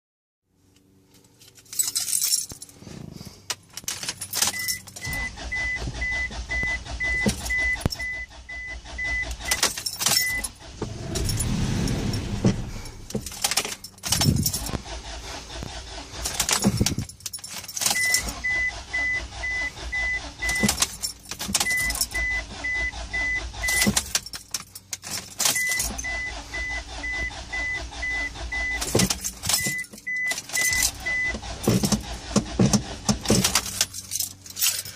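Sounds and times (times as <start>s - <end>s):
car keys jangling in ignition: 1.1s - 34.9s
dashboard warning chime beeping: 4.2s - 14.8s, 17.7s - 24.5s, 25.4s - 32.7s.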